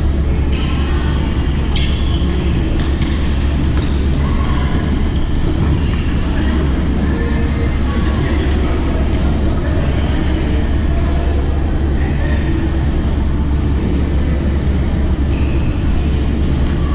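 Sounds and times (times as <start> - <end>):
rackets hitting shuttlecock: 1.5 - 4.8.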